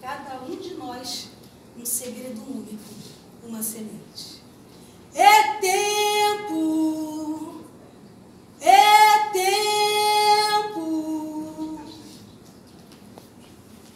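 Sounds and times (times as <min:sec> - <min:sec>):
woman singing unaccompanied: 0:05.1 - 0:07.7, 0:08.6 - 0:12.1.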